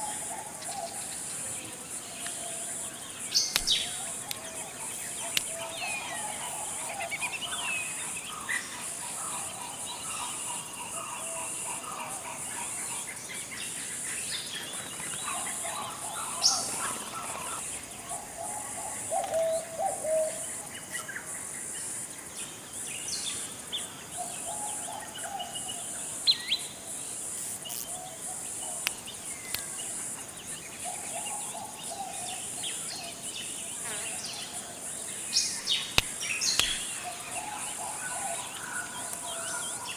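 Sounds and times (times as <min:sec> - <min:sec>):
bird calls: 0:02.2 - 0:12.7, 0:33.8 - 0:39.9
high-pitched insect drone: 0:25.2 - 0:39.9.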